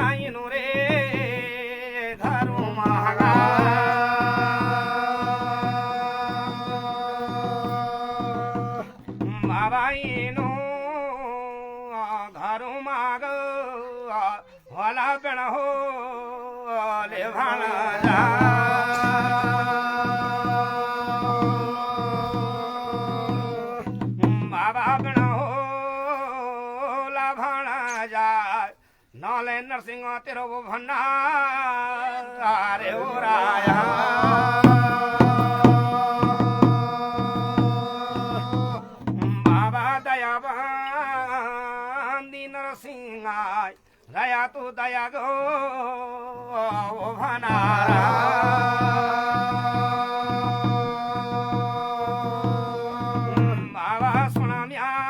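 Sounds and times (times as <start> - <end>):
drumbeat: 0.0 - 10.7, 17.4 - 25.6, 32.8 - 40.0, 46.7 - 54.9
man singing: 0.0 - 55.0.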